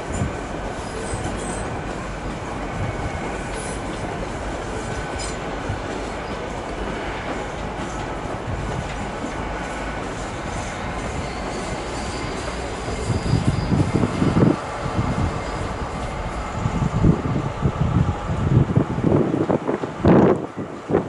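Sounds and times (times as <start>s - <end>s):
train rumbling: 0.0s - 21.0s
faint wheel squeal: 10.6s - 15.9s.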